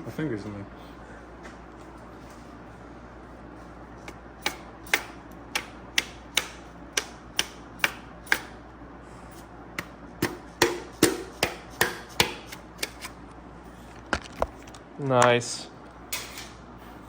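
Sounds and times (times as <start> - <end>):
hammer tapping on piston: 4.4 - 8.5, 9.8 - 12.9.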